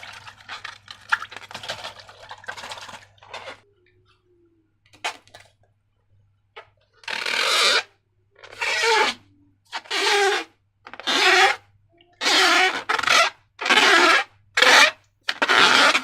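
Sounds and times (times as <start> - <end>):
squishing slime and balloons: 0.0 - 5.6.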